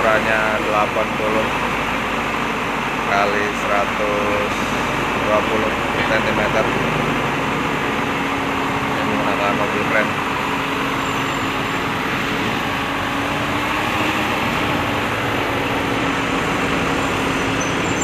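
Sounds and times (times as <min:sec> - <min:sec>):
crane engine humming: 0:00.0 - 0:18.0.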